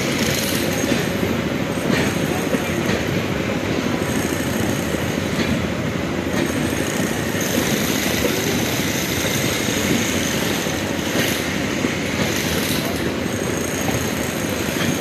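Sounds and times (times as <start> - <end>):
train wheels rumbling and rattling: 0.0 - 15.0.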